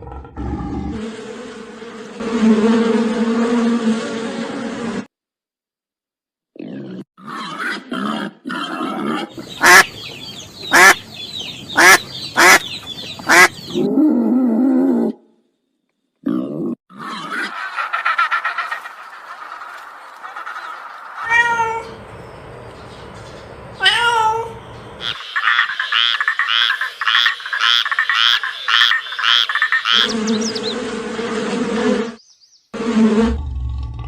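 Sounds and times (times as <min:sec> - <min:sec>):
animal calls: 0:06.6 - 0:15.1, 0:16.3 - 0:23.1, 0:23.8 - 0:32.2
cat meowing: 0:21.3 - 0:22.0.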